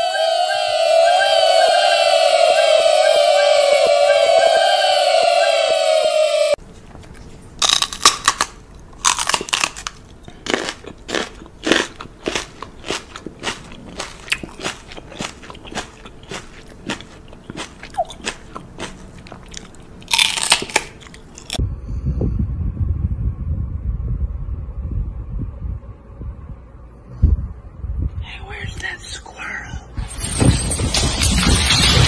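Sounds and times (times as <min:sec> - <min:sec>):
low hum: 0:00.0 - 0:10.2, 0:18.6 - 0:28.8
crunchy chewing: 0:07.0 - 0:21.6.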